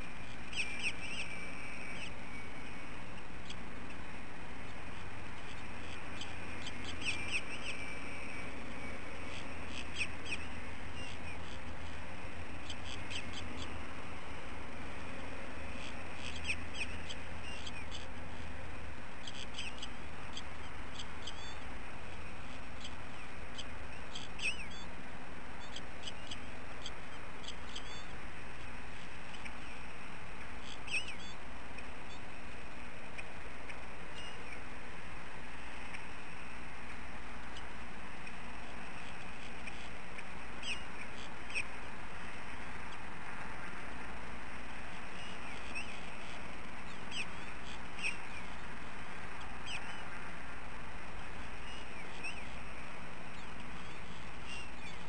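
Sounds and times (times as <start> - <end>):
outdoor hiss: 0.0 - 55.0.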